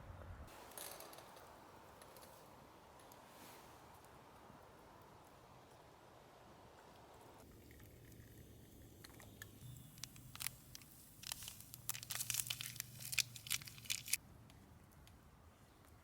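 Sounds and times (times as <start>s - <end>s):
dry crackling and crinkling: 9.0s - 14.2s.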